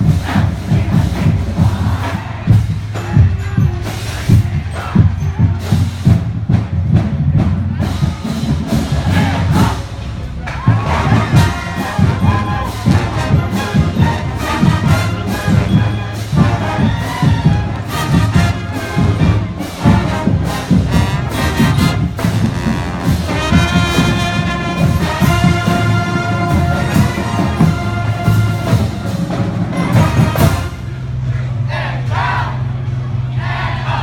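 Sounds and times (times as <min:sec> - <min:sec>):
steady drum beat: 0:00.0 - 0:31.2
brass horns playing: 0:08.6 - 0:31.2.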